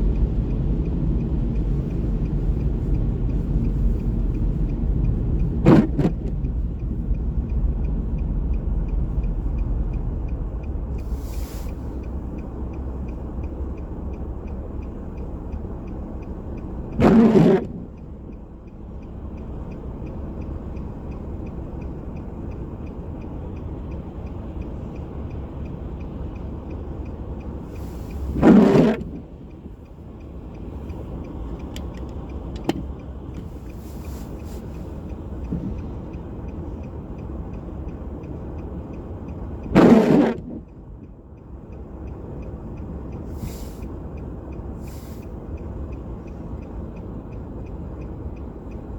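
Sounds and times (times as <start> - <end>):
passing vehicle rushes: 0.0 - 14.1, 24.8 - 36.2
traffic rumble: 0.0 - 48.9.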